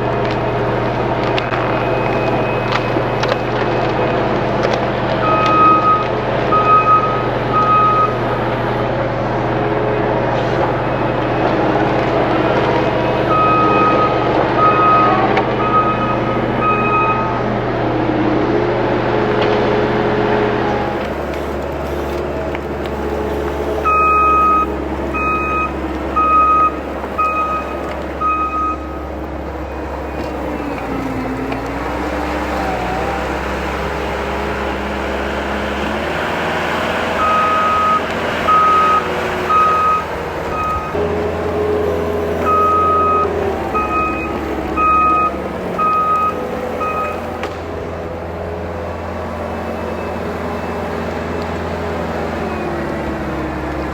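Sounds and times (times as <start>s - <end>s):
diesel engine running: 0.0s - 53.9s
backup alarm beeps: 5.2s - 8.6s, 13.0s - 17.5s, 20.8s - 32.9s, 36.8s - 48.0s.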